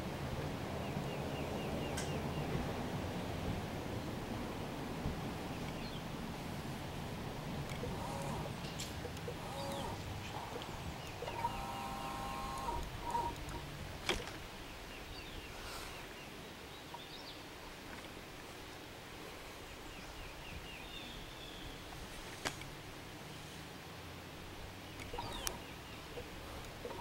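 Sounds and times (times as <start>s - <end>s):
bird chirping trill: 7.8s - 13.6s, 24.9s - 27.0s
low bird call: 7.8s - 13.6s, 24.9s - 27.0s.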